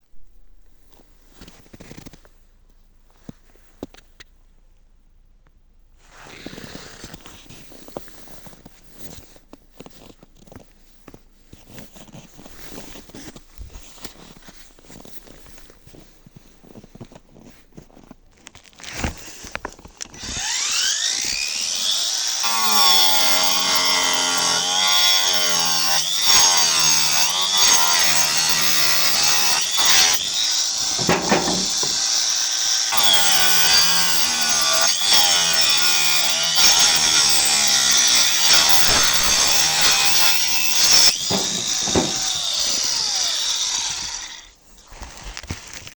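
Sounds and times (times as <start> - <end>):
angle grinder cutting wood: 20.2 - 44.5.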